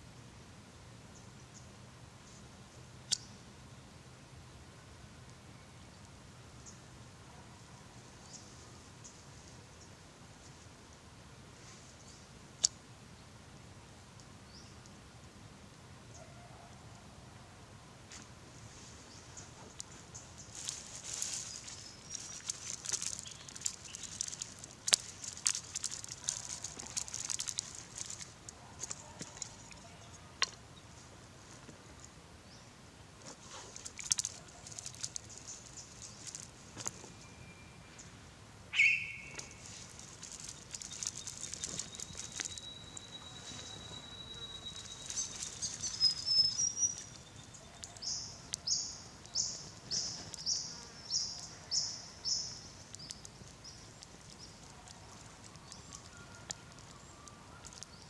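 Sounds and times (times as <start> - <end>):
sharp clicks and snaps: 19.8 - 29.8, 33.7 - 37.0
bird whistle: 38.7 - 39.6, 41.7 - 47.2
birds chattering: 38.7 - 58.0
quick bird chirps: 38.8 - 50.7.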